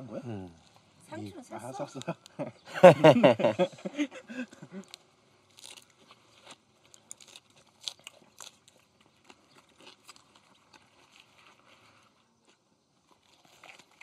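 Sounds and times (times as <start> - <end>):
chewing lettuce leaves: 4.4 - 14.0
soft leaf crunches: 4.8 - 14.0.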